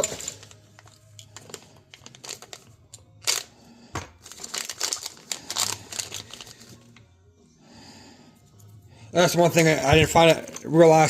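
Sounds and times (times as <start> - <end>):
plastic packaging crinkling and tearing: 0.0 - 3.5, 4.1 - 6.8.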